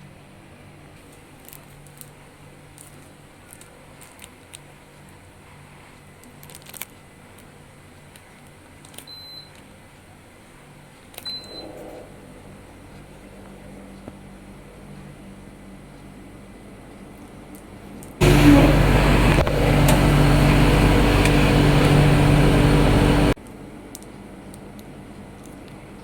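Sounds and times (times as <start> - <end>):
air conditioner beeps: 9.1 - 9.6, 11.2 - 12.2, 18.2 - 23.4
low steady hum: 18.2 - 23.4.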